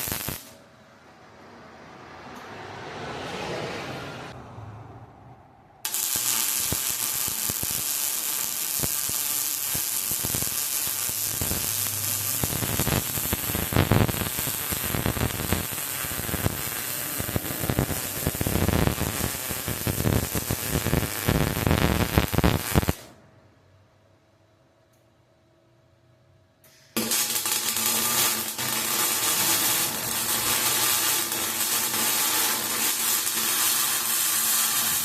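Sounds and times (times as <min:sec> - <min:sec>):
welding arc sizzling and crackling: 0:00.0 - 0:00.6, 0:05.8 - 0:23.1, 0:26.7 - 0:35.0.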